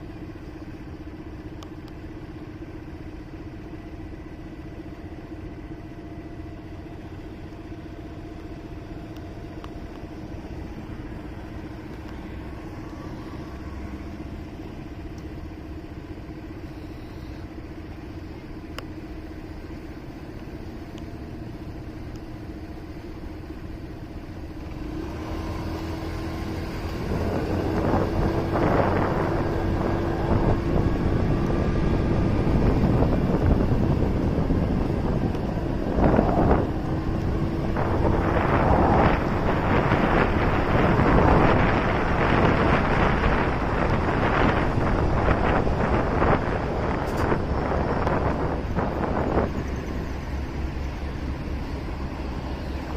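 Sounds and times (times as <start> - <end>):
motorcycle engine idling: 0.0 - 24.8
motorcycle revving and pulling away: 0.0 - 52.9
wind on microphone: 25.4 - 52.9.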